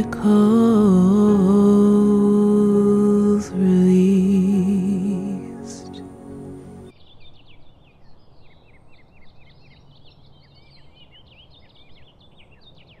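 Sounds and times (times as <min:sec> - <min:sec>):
music: 0:00.0 - 0:06.9.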